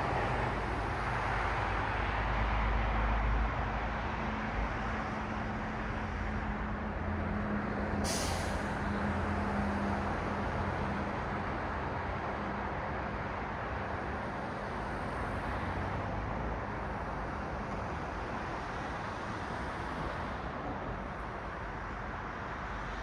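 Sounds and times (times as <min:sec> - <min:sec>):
heavy vehicle engine hum: 0:00.0 - 0:23.0
street traffic passing: 0:00.0 - 0:23.0
short sharp hiss: 0:08.1 - 0:08.7.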